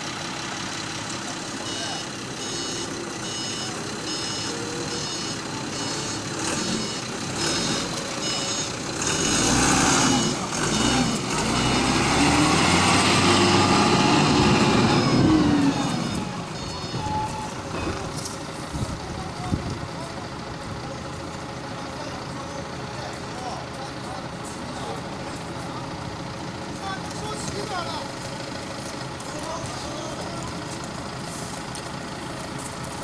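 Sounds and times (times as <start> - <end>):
vehicle engine running: 0.0 - 33.0
reversing alarm beeping: 1.5 - 12.3, 14.6 - 18.0.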